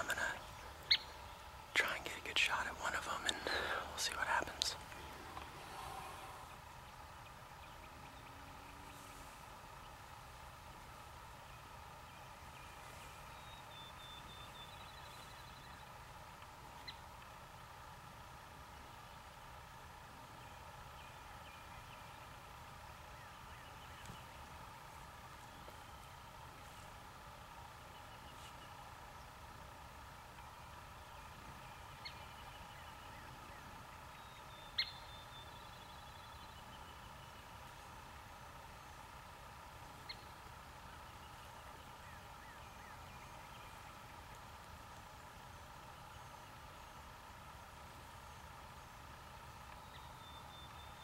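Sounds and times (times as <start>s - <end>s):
songbird trilling: 0.0s - 6.2s, 31.6s - 37.3s
birds calling: 0.0s - 51.0s
low steady rumble: 0.0s - 51.0s.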